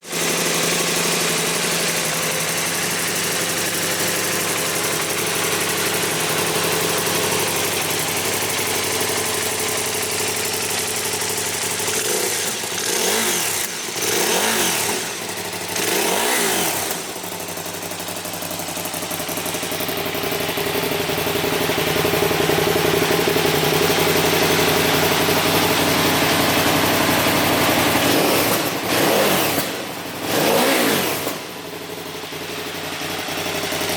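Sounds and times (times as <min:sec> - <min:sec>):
engine revving: 0:00.0 - 0:08.5, 0:11.2 - 0:18.1, 0:21.7 - 0:31.8
motorcycle engine idling: 0:00.0 - 0:33.9.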